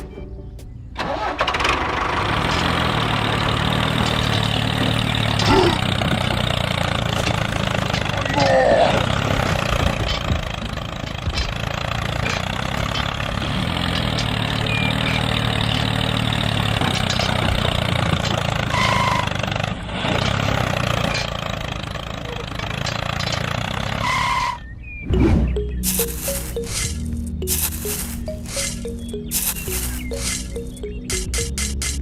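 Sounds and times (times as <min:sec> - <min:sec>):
small engine running: 0:01.0 - 0:24.6, 0:25.6 - 0:31.6
short high-pitched tones: 0:25.1 - 0:31.7.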